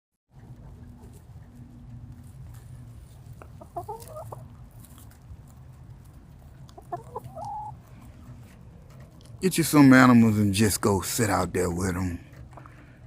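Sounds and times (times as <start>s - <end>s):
steady low hum: 0.3s - 6.9s
chickens clucking: 0.4s - 10.3s, 11.3s - 13.0s.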